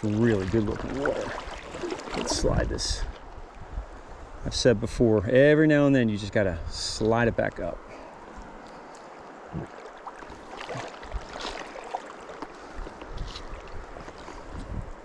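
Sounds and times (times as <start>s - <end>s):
stream water splashing: 0.0s - 4.4s, 7.0s - 15.0s
wind rumble on microphone: 2.2s - 5.2s, 12.7s - 15.0s.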